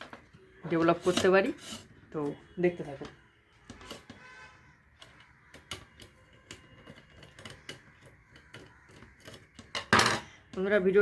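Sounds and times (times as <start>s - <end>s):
tools clicking on a workbench: 5.0s - 10.2s.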